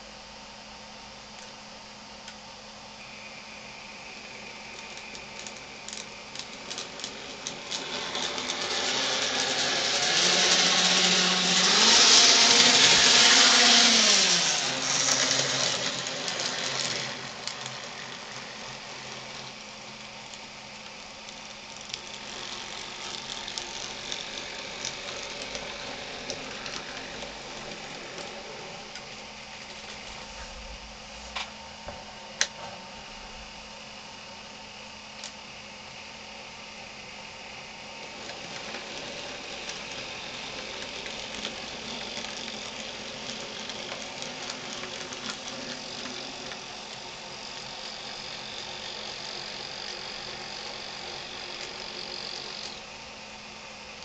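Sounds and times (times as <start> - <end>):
model train motor hum: 3.0 - 30.3, 36.0 - 54.0
wheels clicking on rails: 4.2 - 30.2, 38.0 - 52.8.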